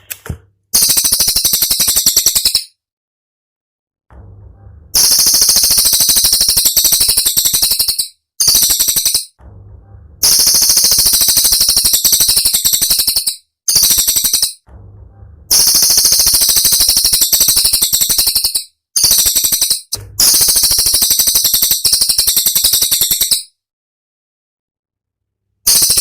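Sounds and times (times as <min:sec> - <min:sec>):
low hum: 0:04.1 - 0:06.0, 0:09.4 - 0:11.2, 0:14.6 - 0:16.6, 0:20.0 - 0:20.8.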